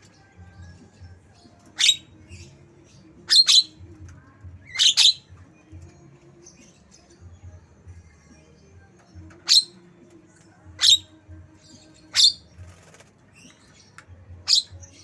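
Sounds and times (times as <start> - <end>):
soft scratchy bird chatter: 8.4 - 15.0
bird sharp high calls: 12.1 - 12.5.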